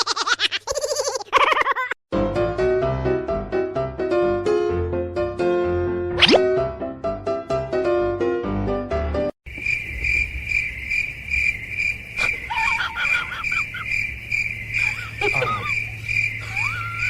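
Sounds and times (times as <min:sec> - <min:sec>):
piano music: 0:02.1 - 0:09.3
cricket chirping: 0:09.5 - 0:17.0
squeaky calls: 0:12.2 - 0:14.1, 0:14.7 - 0:17.0.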